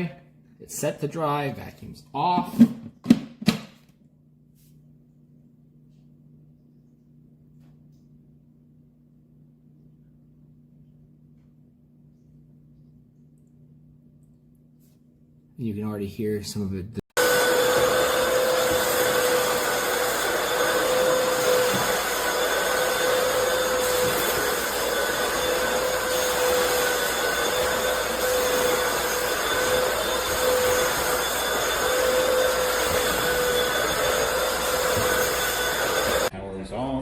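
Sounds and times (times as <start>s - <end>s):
vacuum motor whine: 17.2s - 36.3s.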